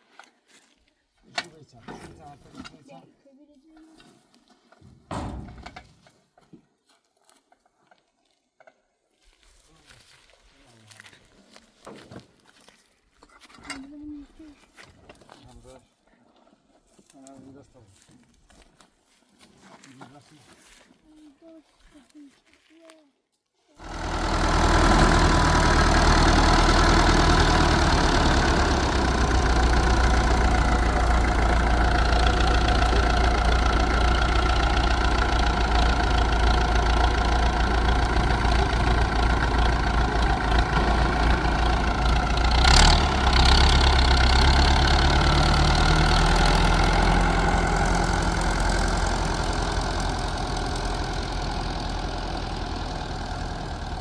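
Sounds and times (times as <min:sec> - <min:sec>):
engine running: 0:05.1 - 0:05.9, 0:23.8 - 0:54.0
sharp knock: 0:05.1 - 0:05.9.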